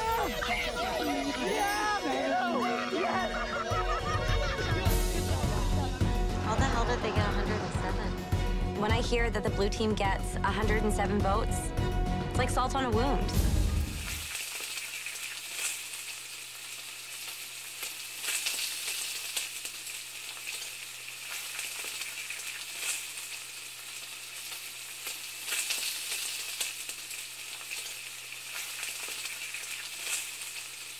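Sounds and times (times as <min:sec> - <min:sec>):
food frying and sizzling: 0:00.0 - 0:09.1, 0:11.7 - 0:30.9
oil crackles and pops: 0:13.9 - 0:30.9.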